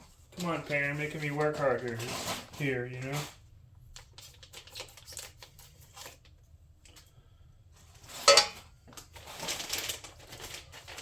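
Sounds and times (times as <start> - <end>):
plastic wrapping bursting: 8.0 - 11.0.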